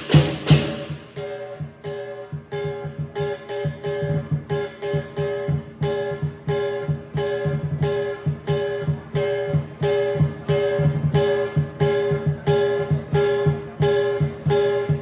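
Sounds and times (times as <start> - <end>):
crash cymbals: 0.0 - 2.0
drum beating: 0.0 - 15.0.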